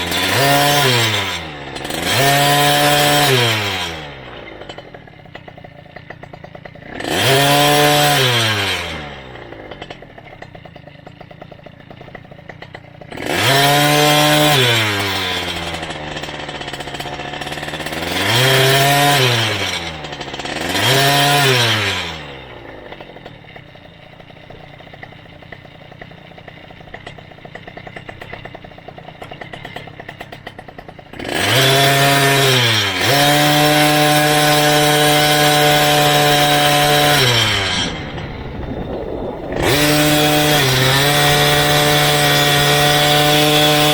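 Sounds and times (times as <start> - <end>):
small engine revving: 0.0 - 43.9.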